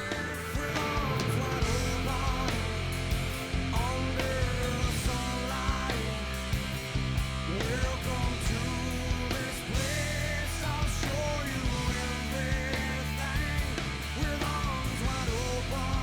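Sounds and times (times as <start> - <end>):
person singing: 0.0 - 3.0
rock music with steady beat: 0.0 - 16.0.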